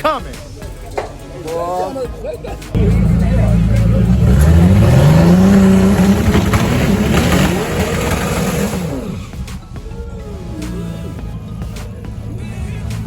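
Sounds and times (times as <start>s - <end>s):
race car engine accelerating: 2.8s - 9.5s.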